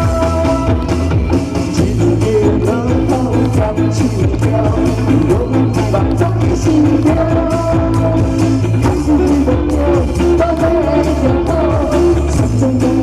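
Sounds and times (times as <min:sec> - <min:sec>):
electric bass: 0:00.0 - 0:13.0
electric guitar: 0:00.0 - 0:13.0
live band playing pop: 0:00.0 - 0:13.0
steady drum beat: 0:00.0 - 0:13.0.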